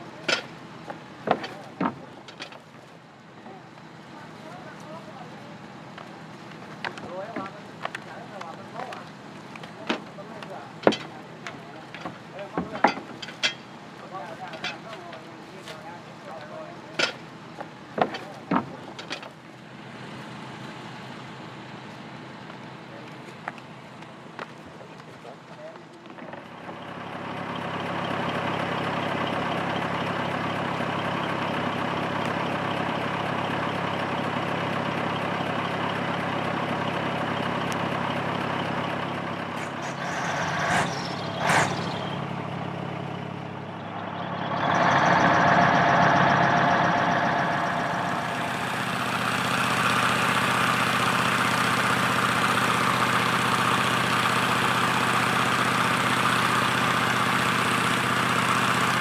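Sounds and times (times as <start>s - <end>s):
large engine running: 0.0s - 59.0s
brief sharp sounds: 39.5s - 42.2s.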